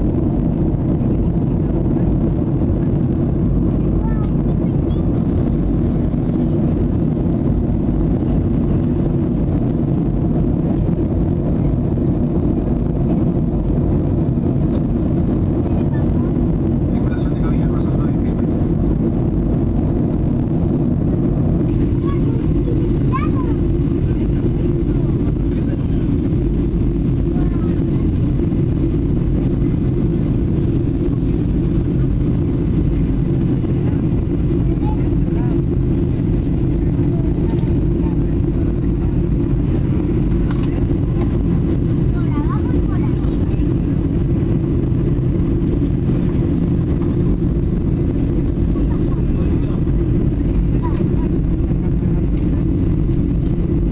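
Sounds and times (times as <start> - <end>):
jet engine cabin rumble: 0.0 - 53.9.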